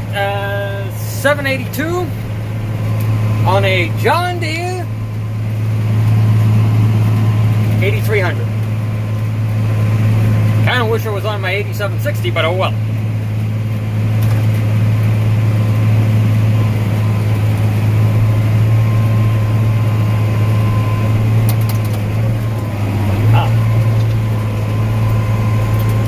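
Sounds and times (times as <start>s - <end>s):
faint steady whine: 0.0s - 26.0s
tractor engine droning: 0.0s - 26.0s.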